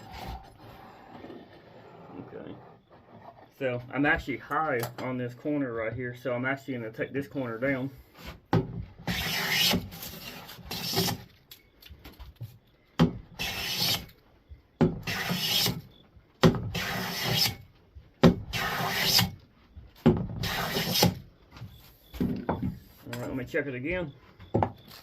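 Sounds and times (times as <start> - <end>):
hand plane shaving wood: 9.0 - 11.2, 13.4 - 14.1, 15.1 - 15.8, 16.7 - 17.6, 18.5 - 19.3, 20.4 - 21.2.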